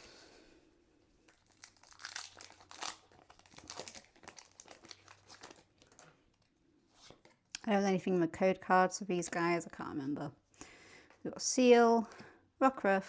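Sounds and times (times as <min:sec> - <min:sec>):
foil wrapper crinkling: 0:01.2 - 0:06.6
foil pack tearing open: 0:01.3 - 0:06.2.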